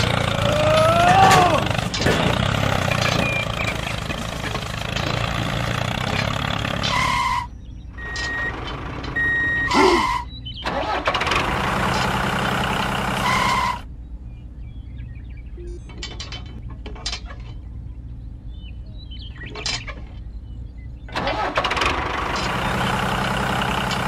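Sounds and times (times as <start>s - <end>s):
tractor engine running: 0.0s - 24.0s
short electronic beeps: 7.0s - 10.4s, 15.5s - 16.1s.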